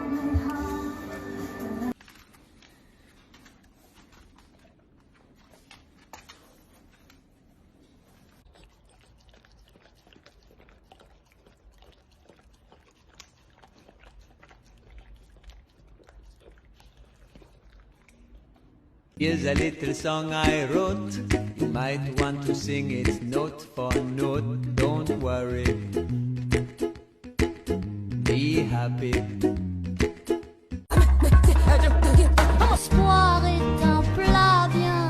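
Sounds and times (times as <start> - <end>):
puppy chewing and biting: 2.0 - 20.6.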